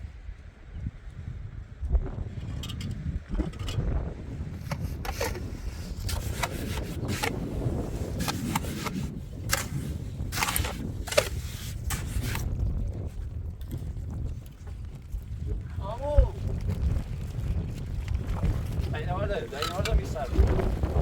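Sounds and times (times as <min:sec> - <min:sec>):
scraping and knocking strokes: 0:04.5 - 0:12.5.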